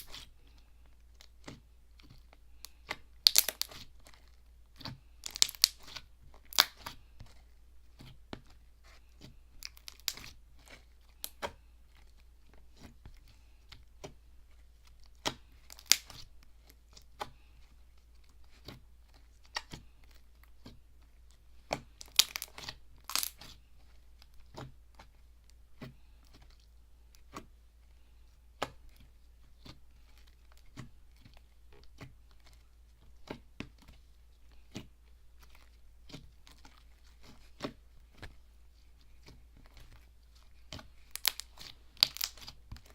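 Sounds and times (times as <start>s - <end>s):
slime squelching by hand: 0.0s - 42.9s.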